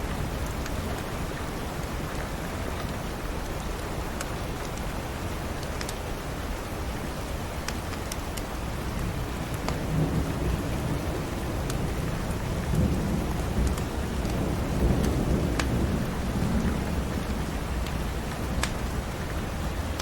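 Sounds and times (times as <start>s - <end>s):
heavy rain: 0.0s - 20.0s
wood fire crackling and popping: 7.5s - 9.9s, 11.6s - 16.0s, 17.7s - 19.3s
rolling thunder rumble: 9.1s - 20.0s.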